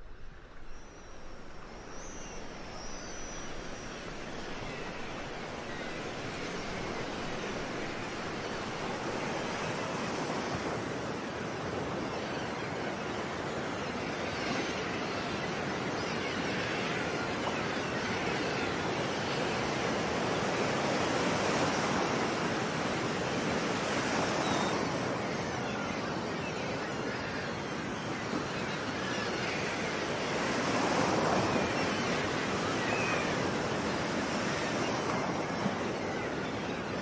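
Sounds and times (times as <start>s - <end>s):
ocean surf washing ashore: 0.0s - 15.3s, 17.9s - 37.0s.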